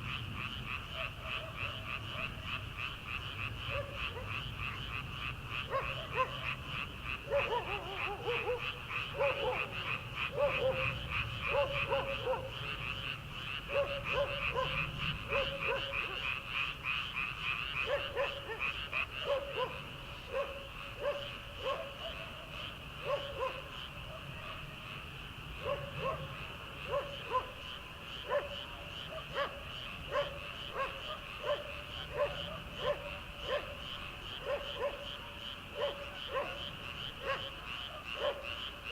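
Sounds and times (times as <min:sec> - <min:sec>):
deep frog croaks: 0:00.0 - 0:38.9
frogs trilling: 0:00.0 - 0:38.9.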